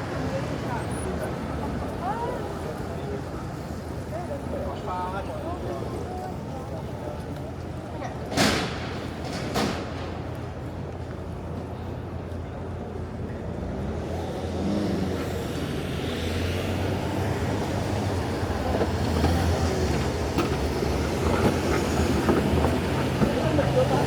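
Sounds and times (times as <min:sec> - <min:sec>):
road noise: 0:00.0 - 0:24.0
heavy vehicle engine droning: 0:11.3 - 0:24.0.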